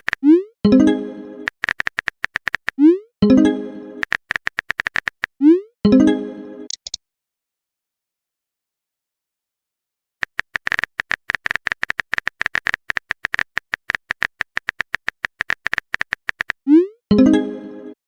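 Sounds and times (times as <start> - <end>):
phone keyboard typing clicks: 0.0 - 0.3, 1.4 - 2.8, 4.0 - 5.4, 6.7 - 7.0, 10.2 - 16.6.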